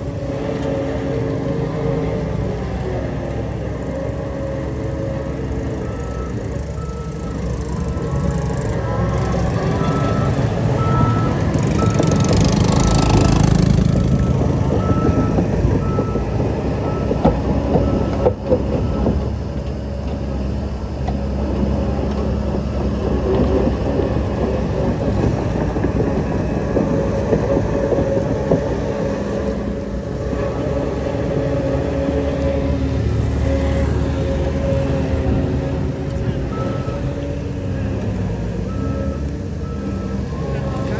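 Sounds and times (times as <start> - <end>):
diesel earthmoving machinery: 0.0 - 40.9
reversing alarm beeping: 3.9 - 19.3, 32.2 - 37.7, 38.6 - 40.9.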